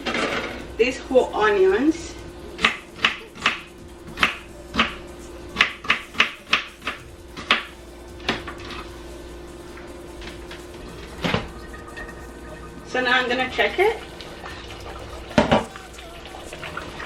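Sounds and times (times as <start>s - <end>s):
knife chopping on cutting board: 5.6s - 8.5s.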